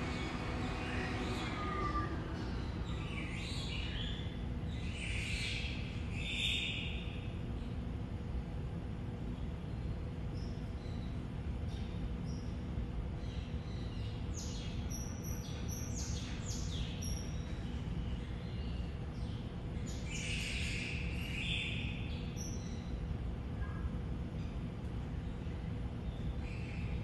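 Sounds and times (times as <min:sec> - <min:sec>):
birds chirping: 0:00.0 - 0:05.7
low background hum: 0:00.0 - 0:27.0.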